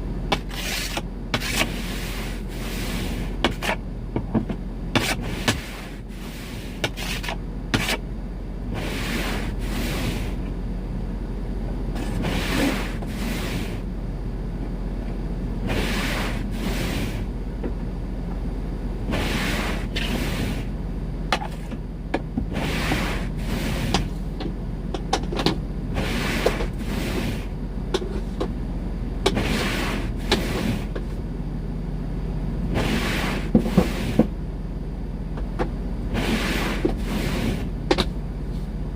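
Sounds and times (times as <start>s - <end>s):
steady low hum: 0.0s - 38.9s
snow scraper scraping windshield: 0.3s - 8.1s, 8.7s - 10.4s, 12.0s - 13.8s, 15.6s - 17.3s, 19.0s - 20.7s, 22.4s - 24.4s, 25.8s - 28.4s, 29.2s - 31.2s, 32.7s - 34.3s, 36.0s - 38.7s.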